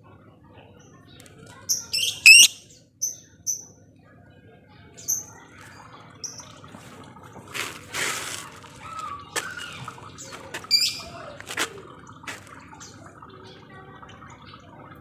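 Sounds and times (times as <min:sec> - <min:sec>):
bird chattering: 0:01.7 - 0:03.6
lovebirds chirping: 0:01.7 - 0:03.6.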